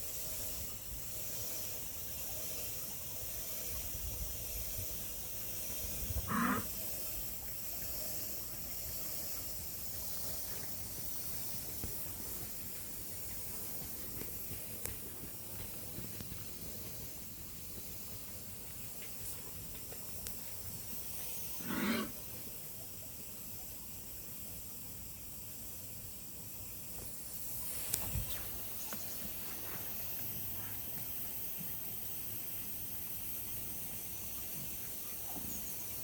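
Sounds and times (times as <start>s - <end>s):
steady outdoor hiss: 0.0s - 36.0s
cow lowing: 6.1s - 6.8s.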